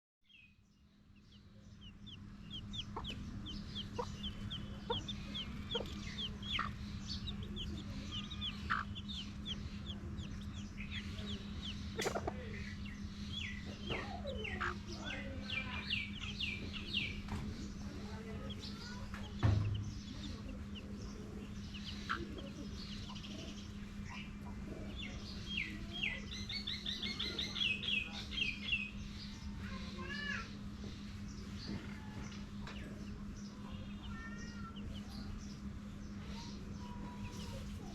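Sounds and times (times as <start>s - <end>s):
chicks peeping: 0.3s - 37.9s
steady low hum: 0.3s - 37.9s
hen clucking: 1.8s - 27.6s
loud thump: 19.4s - 20.0s.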